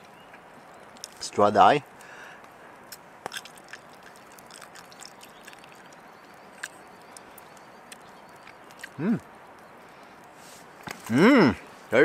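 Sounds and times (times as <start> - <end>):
person chewing: 2.9 - 9.3.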